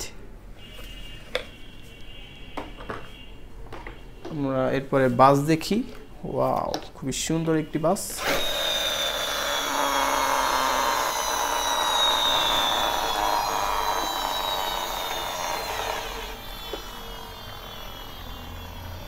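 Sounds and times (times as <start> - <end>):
toy motor whirring: 8.2 - 19.0.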